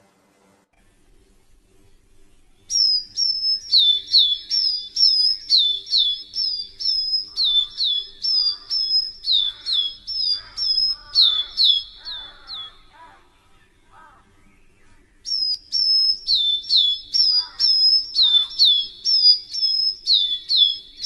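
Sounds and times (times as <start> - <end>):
bird chirping high: 2.6 - 21.0
bird chattering softly: 2.7 - 13.2, 15.2 - 20.8.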